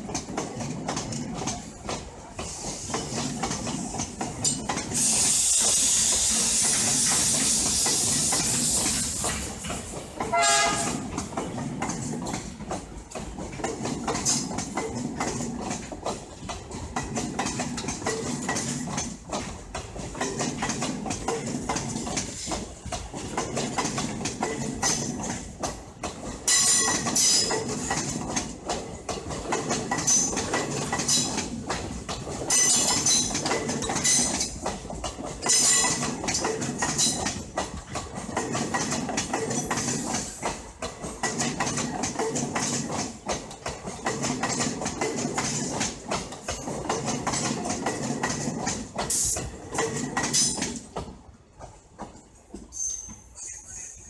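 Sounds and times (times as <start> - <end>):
rumble of train wheels: 0.0 - 54.0
wheels clattering over rail joints: 0.0 - 54.0.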